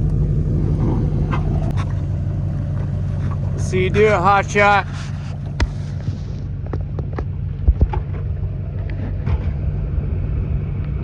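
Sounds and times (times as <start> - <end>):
boat motor idling: 0.0 - 11.0.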